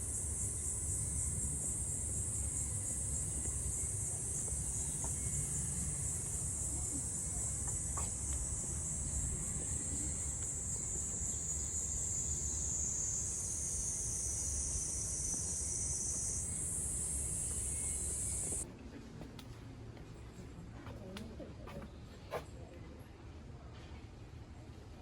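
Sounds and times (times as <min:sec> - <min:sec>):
insects buzzing: 0:00.0 - 0:18.6.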